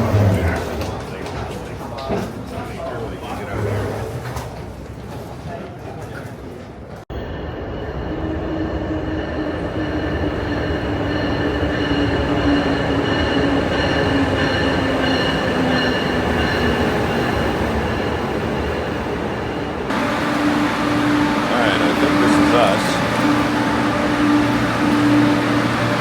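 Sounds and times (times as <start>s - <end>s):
train rail rumble: 6.8s - 26.0s
wheel squeal and drive whine: 19.9s - 26.0s.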